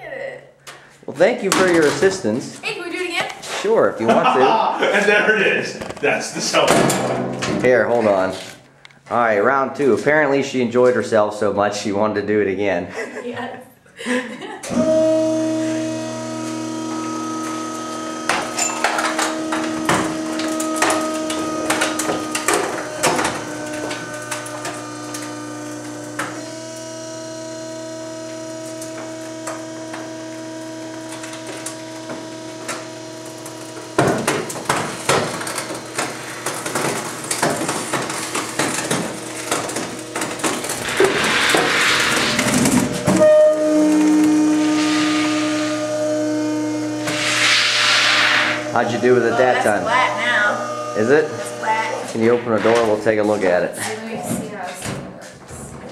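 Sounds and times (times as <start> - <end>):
trash compactor humming: 14.6 - 54.7
plastic and metal cracking: 18.0 - 27.0, 27.6 - 44.3.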